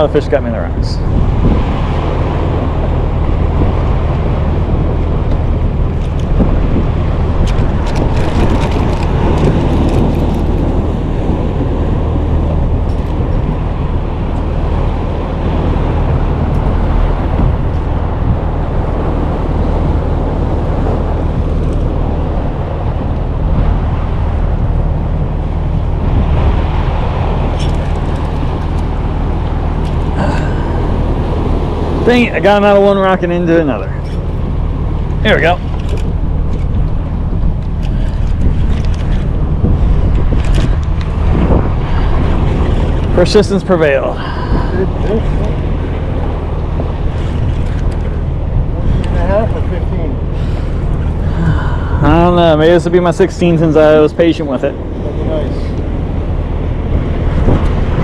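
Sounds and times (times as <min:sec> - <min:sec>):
small boat motor humming: 0:00.0 - 0:58.0
wind on microphone: 0:00.0 - 0:58.0
light clicks and rattles: 0:05.3 - 0:06.4, 0:07.4 - 0:10.8, 0:12.8 - 0:13.6, 0:27.5 - 0:30.5, 0:35.1 - 0:39.3, 0:40.1 - 0:41.2.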